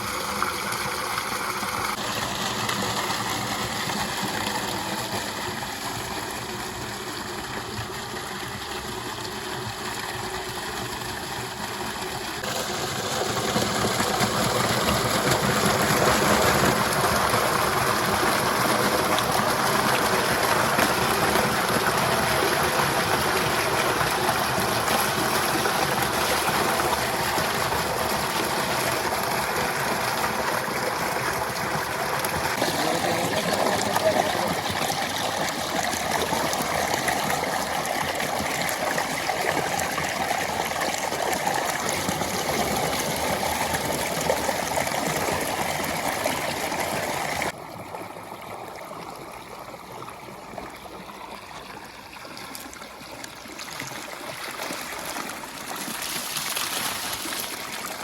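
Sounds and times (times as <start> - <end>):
water running and splashing: 0.0 - 47.6, 52.0 - 58.0.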